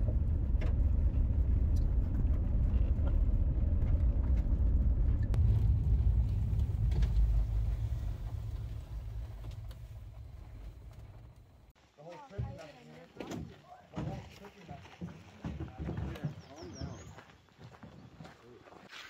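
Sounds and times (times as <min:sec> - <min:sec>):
car driving on gravel: 0:00.0 - 0:11.8.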